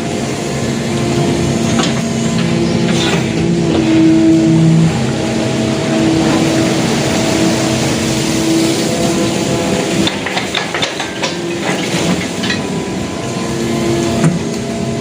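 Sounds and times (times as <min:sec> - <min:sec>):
diesel engine running: 0:00.0 - 0:15.0
metallic knocks and clanks: 0:10.0 - 0:12.7.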